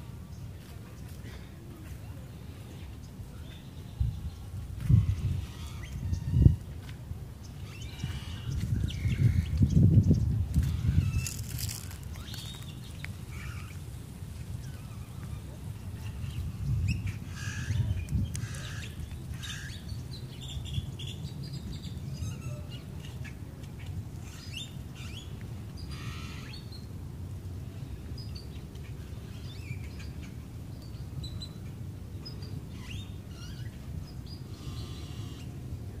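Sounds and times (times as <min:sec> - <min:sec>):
small birds chirping: 0:07.4 - 0:26.9.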